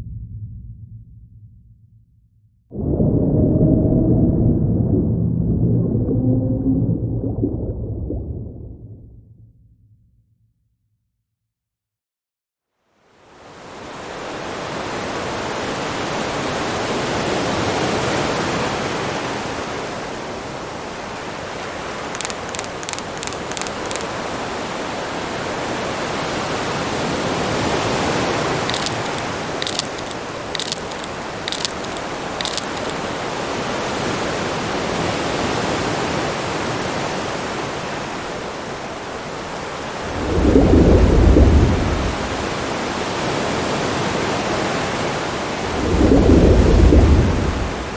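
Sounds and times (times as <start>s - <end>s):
rushing underwater ocean noise: 2.7s - 8.7s, 13.3s - 47.9s
loud low rumble: 2.7s - 9.2s
sharp high clicks: 22.2s - 24.2s, 28.7s - 33.2s.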